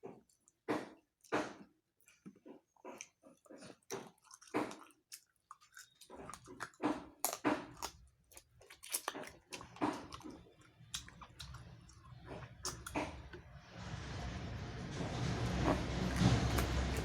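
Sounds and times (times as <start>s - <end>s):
person chewing and lip-smacking: 0.0s - 13.5s
low steady hum: 10.7s - 17.0s.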